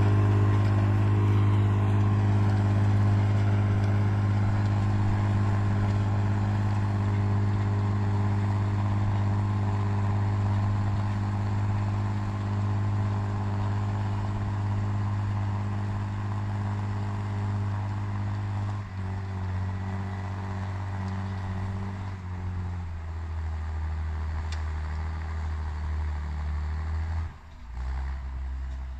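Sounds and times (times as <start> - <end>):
tractor engine running: 0.0 - 28.9.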